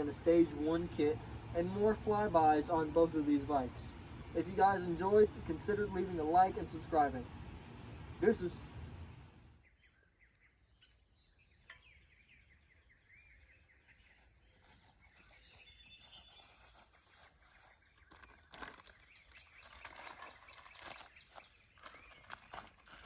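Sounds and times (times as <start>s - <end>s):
faint bird chirps: 8.2s - 23.0s.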